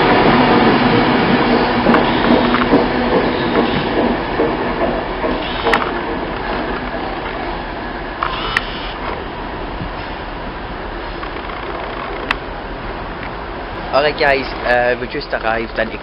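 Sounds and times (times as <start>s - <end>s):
electric train rumble: 0.0s - 16.0s.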